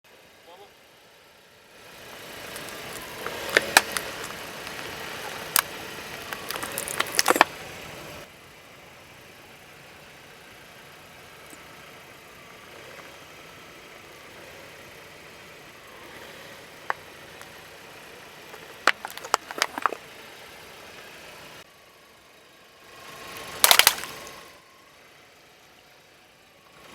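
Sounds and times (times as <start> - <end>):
car engine running: 0.2 - 26.9
tyres crushing objects: 2.3 - 7.7, 18.4 - 20.1, 23.6 - 24.3.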